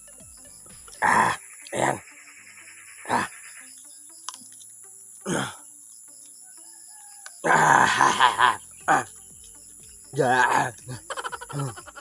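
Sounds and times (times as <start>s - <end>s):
rooster crowing: 6.5s - 7.9s.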